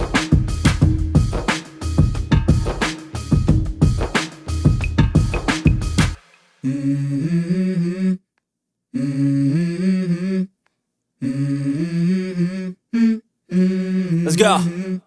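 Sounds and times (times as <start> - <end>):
person humming a melody: 6.6 - 8.2, 8.9 - 10.5, 11.2 - 15.0.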